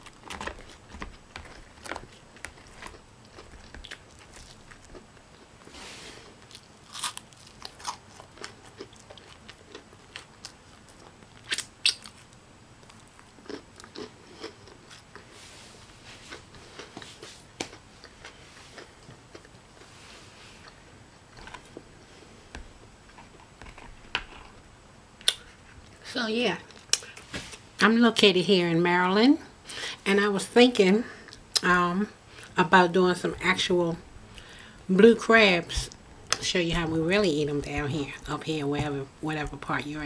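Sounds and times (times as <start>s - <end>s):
biscuits crunching while chewed: 0.0s - 15.4s, 16.2s - 20.0s.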